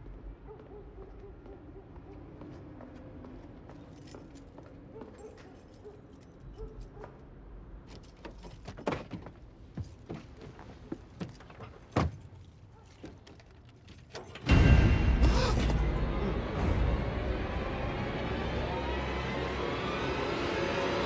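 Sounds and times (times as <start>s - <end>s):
aircraft engine roar: 15.2s - 21.0s.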